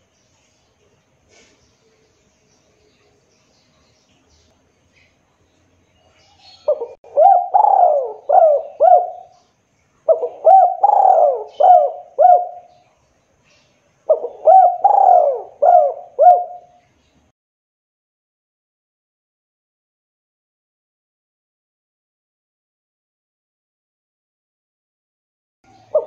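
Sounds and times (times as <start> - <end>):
dove cooing: 6.3 - 9.4, 10.1 - 12.7, 14.1 - 16.8, 25.7 - 26.0.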